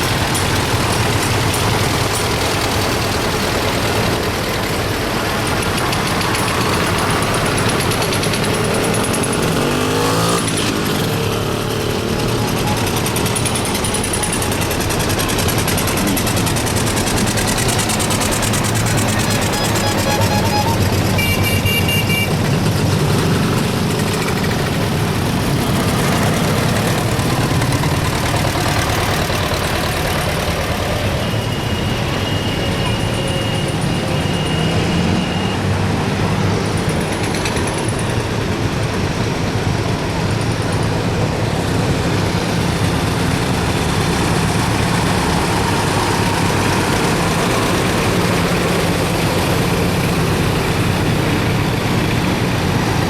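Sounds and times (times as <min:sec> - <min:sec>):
low engine drone: 0:10.3 - 0:53.0.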